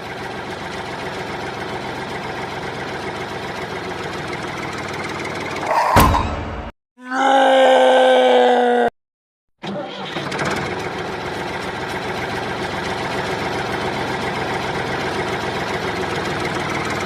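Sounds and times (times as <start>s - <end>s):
small engine running: 0.0s - 5.7s, 9.6s - 17.0s.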